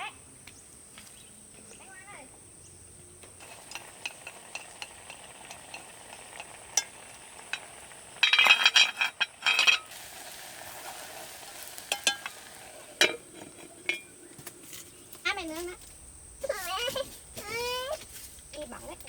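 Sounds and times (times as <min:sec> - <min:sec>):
stirring and scraping in pot: 0:03.4 - 0:15.8.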